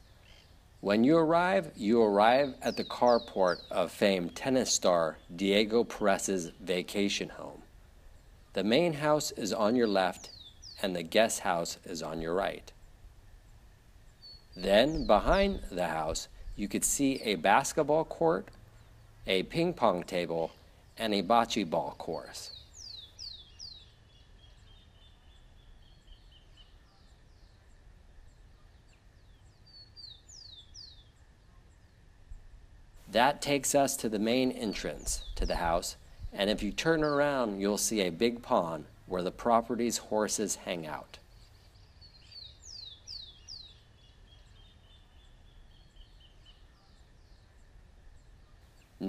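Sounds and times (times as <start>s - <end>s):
birds whistling: 8.1s - 10.9s, 14.1s - 18.0s, 21.9s - 27.7s, 28.3s - 31.2s, 34.6s - 37.7s, 40.8s - 47.6s.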